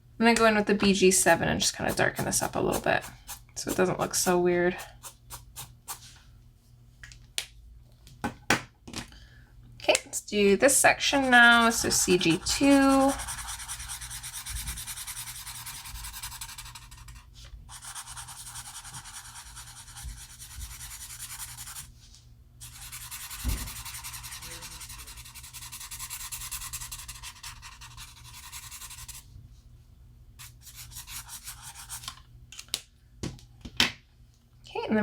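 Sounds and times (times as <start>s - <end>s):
marker scratching on paper: 1.7s - 6.0s, 11.1s - 21.9s, 22.6s - 29.2s, 30.4s - 32.0s.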